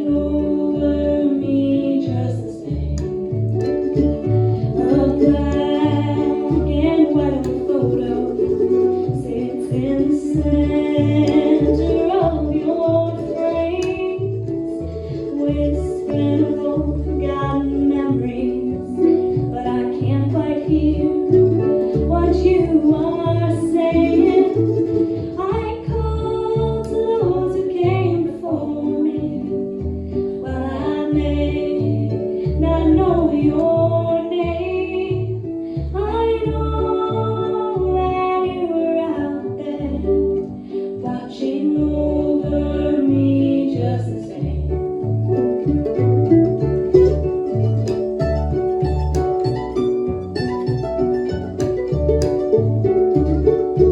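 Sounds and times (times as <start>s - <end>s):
harp: 0.0s - 53.9s
mandolin: 0.0s - 53.9s
upright bass plucking: 0.0s - 53.9s.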